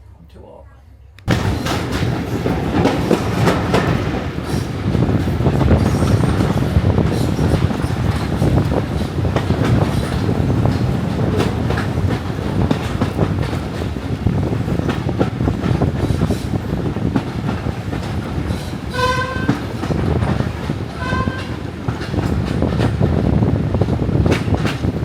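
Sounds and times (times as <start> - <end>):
wheels clicking over rail joints: 1.3 - 23.0
train carriages rumbling: 1.3 - 25.0
train horn toots: 18.9 - 19.7, 21.0 - 21.6.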